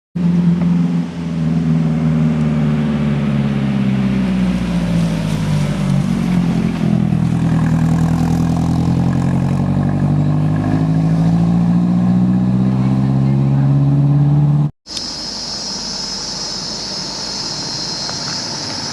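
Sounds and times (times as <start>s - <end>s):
heavy vehicle engine running: 12.4s - 18.9s.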